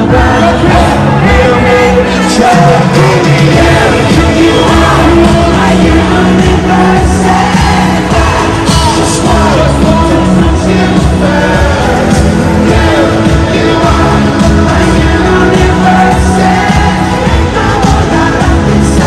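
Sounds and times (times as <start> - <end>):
pop song with singing and beat: 0.0 - 19.0.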